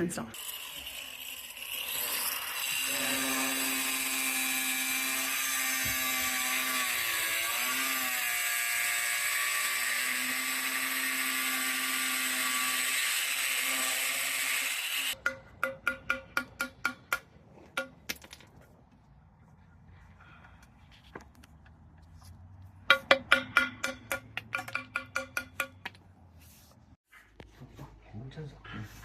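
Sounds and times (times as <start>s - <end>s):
power tool motor running: 0.4s - 15.2s.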